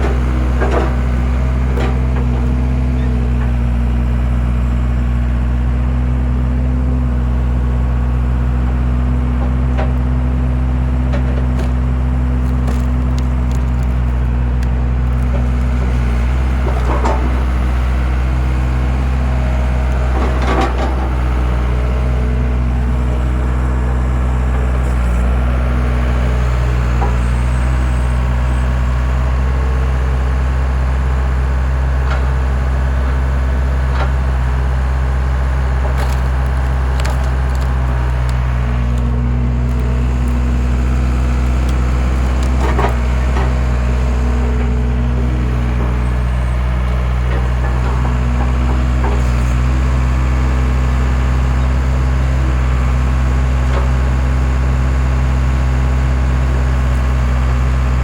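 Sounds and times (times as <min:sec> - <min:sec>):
skid steer engine running: 0:00.0 - 0:58.0
wood splitting cracks: 0:10.9 - 0:19.3, 0:35.5 - 0:49.0.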